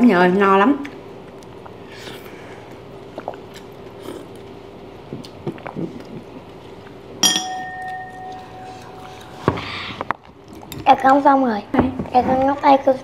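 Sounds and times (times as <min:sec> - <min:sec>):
faint steady hum: 0:00.0 - 0:13.0
close chewing and mouth clicks: 0:00.9 - 0:07.0
utensil clinking on bowl: 0:07.2 - 0:09.3.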